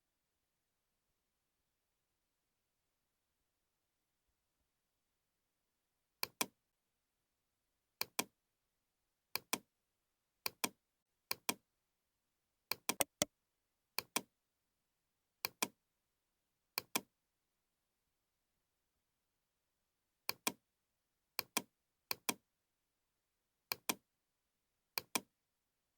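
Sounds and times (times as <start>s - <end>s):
computer mouse clicks: 6.2s - 6.5s, 12.7s - 13.3s, 25.0s - 25.3s.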